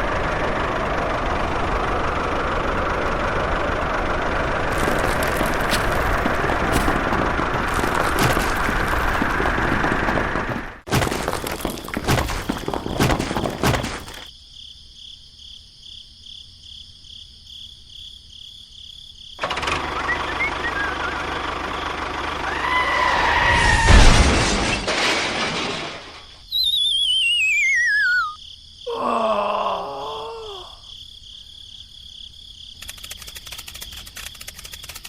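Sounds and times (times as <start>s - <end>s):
warbling whistle sliding down: 26.5s - 28.4s.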